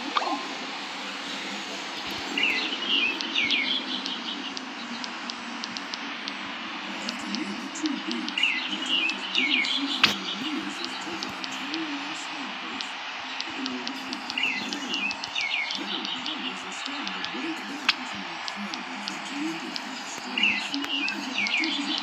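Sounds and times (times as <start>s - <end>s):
bird chirping: 2.0s - 19.6s.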